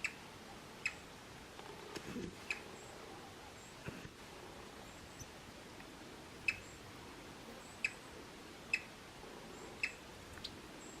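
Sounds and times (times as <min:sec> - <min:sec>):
woodpecker clicks: 0:05.8 - 0:06.6.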